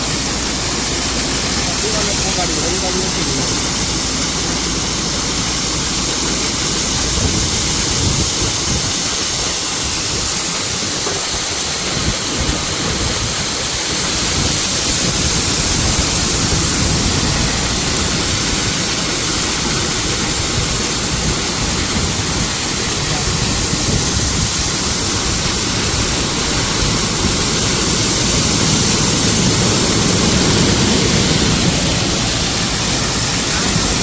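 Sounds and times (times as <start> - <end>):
rushing noise of unloading: 0.0 - 34.0
truck engine rumble: 0.0 - 34.0.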